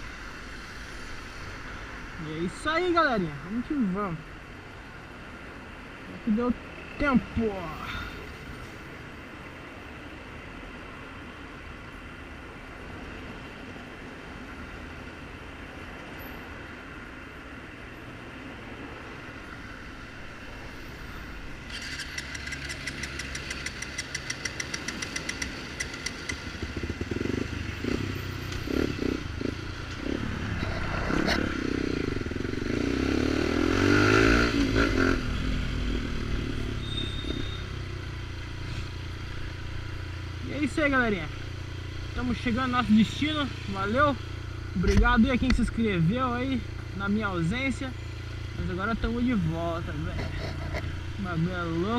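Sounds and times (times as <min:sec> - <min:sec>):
motorcycle engine: 0:21.6 - 0:51.9.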